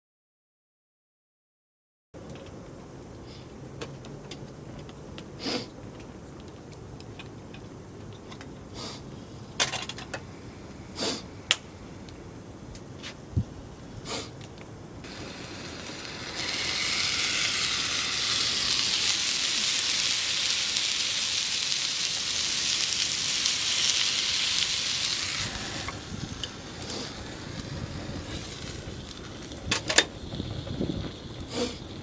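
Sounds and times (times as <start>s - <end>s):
dumplings sizzling in a frying pan: 15.0s - 32.0s.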